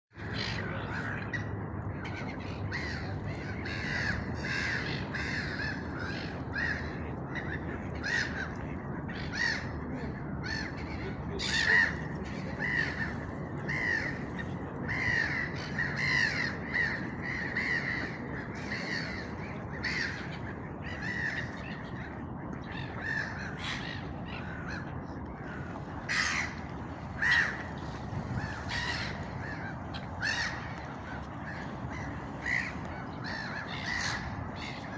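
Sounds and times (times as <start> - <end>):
crows cawing: 2.7 - 7.0, 14.9 - 20.2, 22.8 - 27.7, 28.3 - 34.9.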